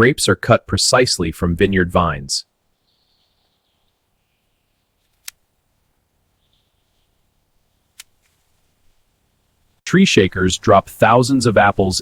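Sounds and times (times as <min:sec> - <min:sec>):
hand shears snipping: 0:05.0 - 0:05.5, 0:07.9 - 0:08.5.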